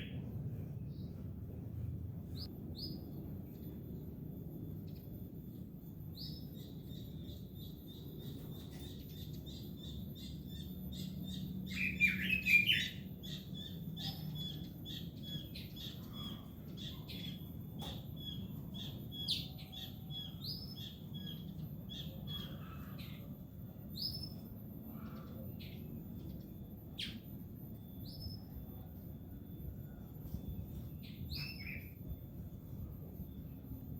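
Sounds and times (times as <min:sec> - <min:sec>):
bird singing chirps and whistles: 0:06.1 - 0:22.6, 0:31.0 - 0:32.0.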